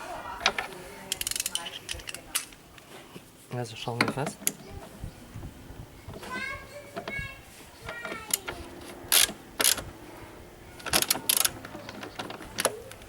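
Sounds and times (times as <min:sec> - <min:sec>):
ratchet wrench clicking: 0:01.1 - 0:02.2, 0:09.1 - 0:09.8, 0:10.8 - 0:11.5.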